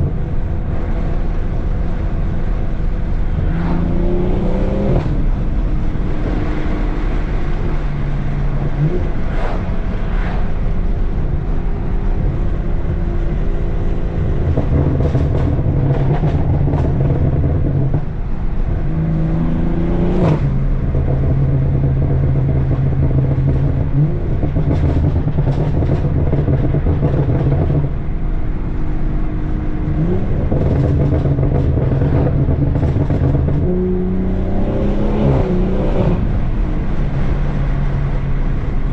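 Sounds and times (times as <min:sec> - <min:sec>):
loud car exhaust revving: 0:29.6 - 0:38.9.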